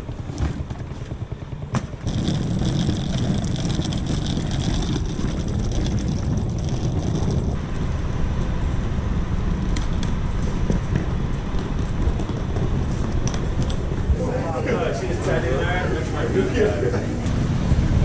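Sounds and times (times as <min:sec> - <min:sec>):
wind noise: 0:00.0 - 0:14.8, 0:17.0 - 0:18.0
vehicle rumble in motion: 0:00.0 - 0:18.0
small clicks and rattles: 0:02.0 - 0:07.6.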